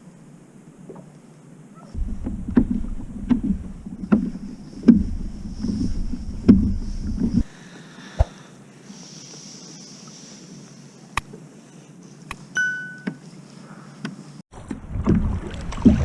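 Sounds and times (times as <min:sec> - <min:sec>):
water and wind rumble: 0:01.9 - 0:07.5, 0:14.5 - 0:16.0
kayak paddle knocks and splashes: 0:02.0 - 0:07.4, 0:14.5 - 0:16.0.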